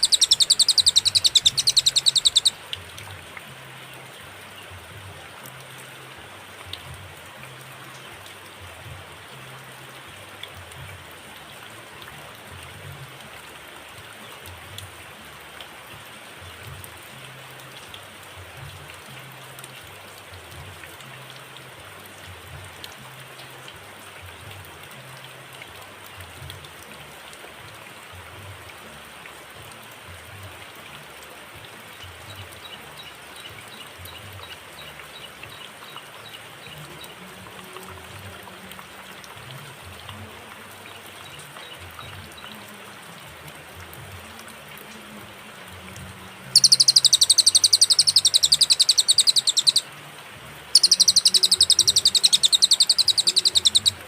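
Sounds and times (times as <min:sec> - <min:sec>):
rain falling: 0:00.0 - 0:54.0
faint ticks: 0:45.8 - 0:49.8, 0:50.7 - 0:54.0.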